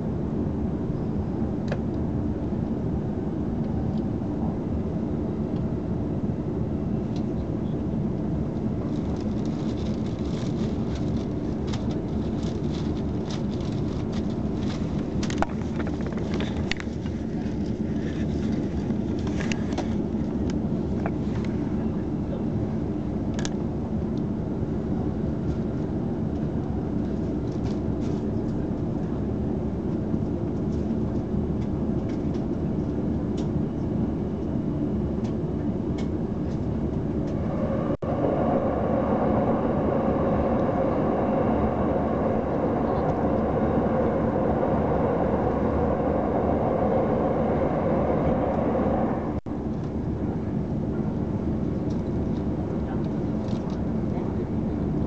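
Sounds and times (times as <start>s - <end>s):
train wheels rumbling on rails: 8.8s - 22.0s, 36.0s - 49.5s.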